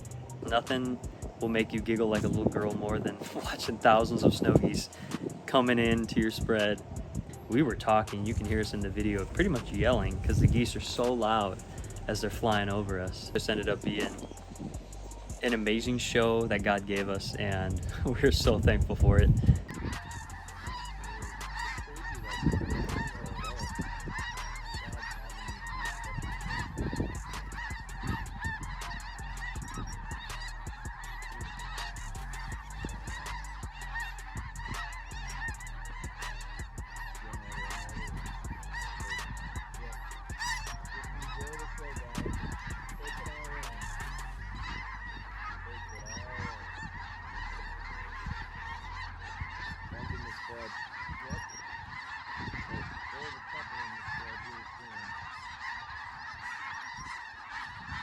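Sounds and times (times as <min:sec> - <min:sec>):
snow geese honking: 0:00.0 - 0:58.0
low rumble: 0:17.5 - 0:45.8.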